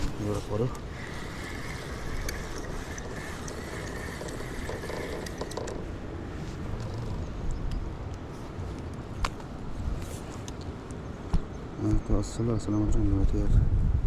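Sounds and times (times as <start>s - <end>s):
fishing reel whirring: 0.0s - 6.0s.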